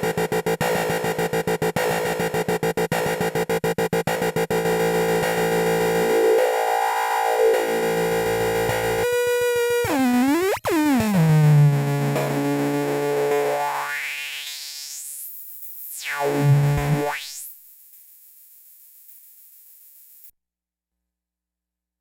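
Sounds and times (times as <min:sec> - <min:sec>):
synth drone with buzzy tones: 0:00.0 - 0:17.6.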